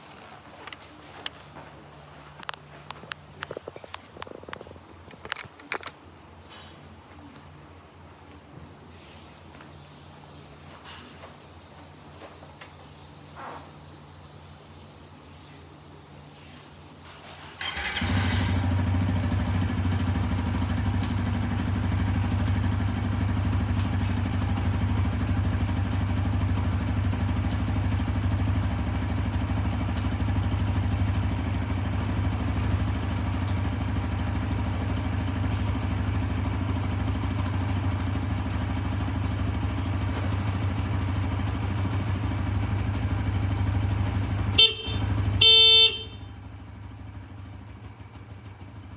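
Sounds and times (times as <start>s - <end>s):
motorcycle engine starting and idling: 17.2s - 48.9s.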